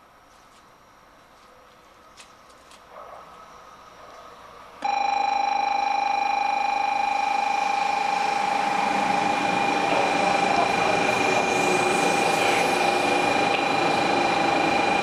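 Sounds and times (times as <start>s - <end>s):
faint train noise: 0.0s - 15.0s
platform warning bell pulsing tone: 4.8s - 15.0s.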